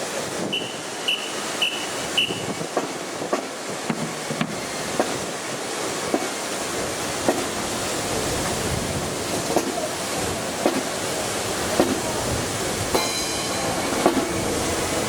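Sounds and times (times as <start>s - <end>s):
wind buffeting microphone: 6.7s - 15.0s.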